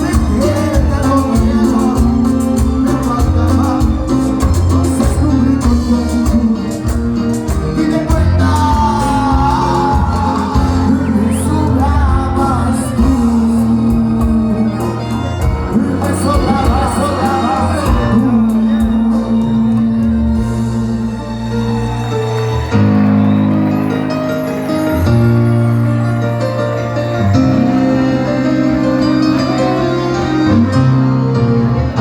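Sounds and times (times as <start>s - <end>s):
person singing lead vocal: 0.0s - 21.3s
live band playing: 0.0s - 32.0s.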